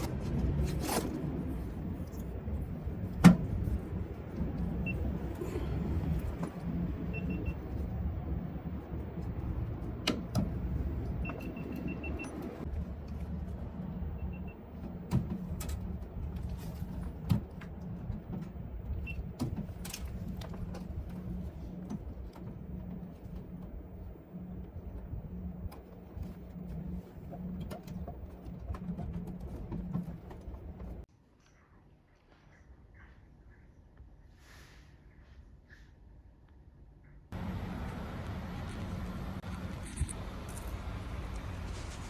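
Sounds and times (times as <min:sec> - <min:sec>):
low machine hum: 0:00.0 - 0:31.1, 0:37.3 - 0:42.0
high beeps: 0:07.1 - 0:07.6.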